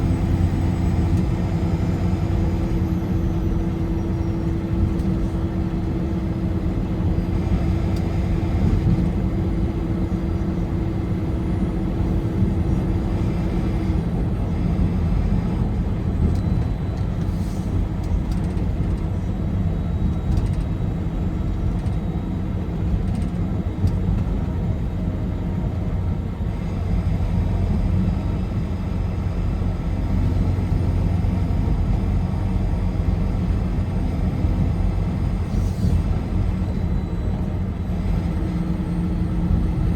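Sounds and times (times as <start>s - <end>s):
car engine and tyre noise: 0.0s - 39.9s.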